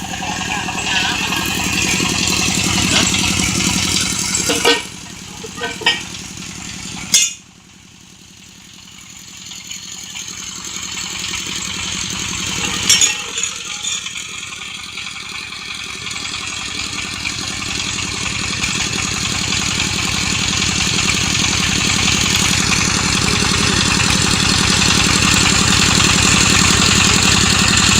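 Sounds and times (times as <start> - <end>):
drilling rig engine rattling: 0.0 - 27.9.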